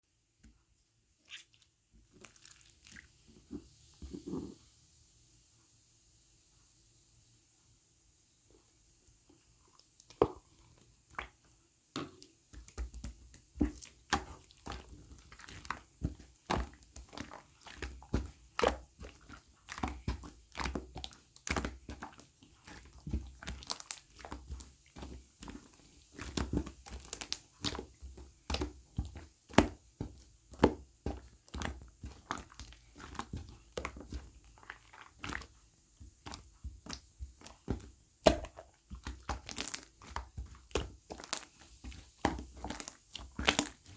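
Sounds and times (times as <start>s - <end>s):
crunching and crinkling: 36.8s - 43.9s.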